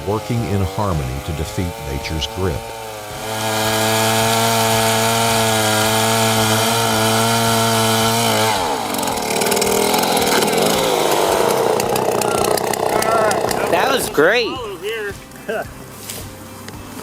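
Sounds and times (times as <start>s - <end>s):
chainsaw cutting wood: 0.0s - 17.0s.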